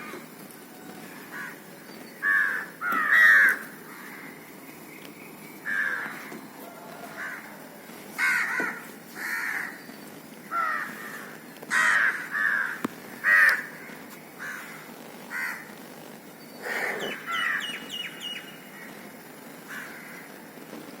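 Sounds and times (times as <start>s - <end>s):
crow cawing: 1.3s - 1.6s, 2.2s - 4.4s, 5.6s - 9.8s, 10.5s - 15.7s, 16.7s - 18.9s, 19.7s - 20.3s.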